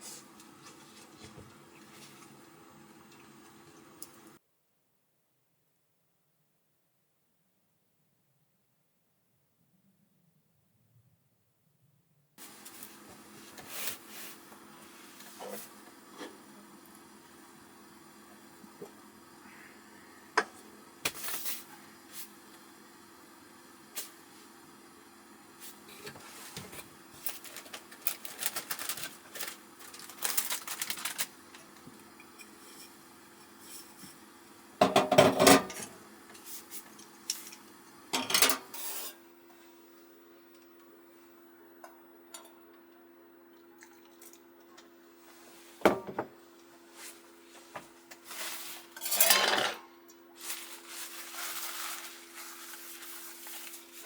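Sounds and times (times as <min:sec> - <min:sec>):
faint steady hum: 0:12.4 - 0:54.0
cookware clinking and clattering: 0:34.8 - 0:35.9, 0:38.2 - 0:39.0, 0:49.0 - 0:49.8.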